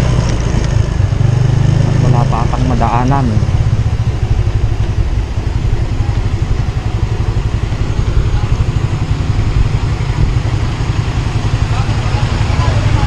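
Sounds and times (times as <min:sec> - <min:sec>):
scooter engine running: 0:00.0 - 0:13.0
wind rumble on microphone: 0:03.2 - 0:10.7.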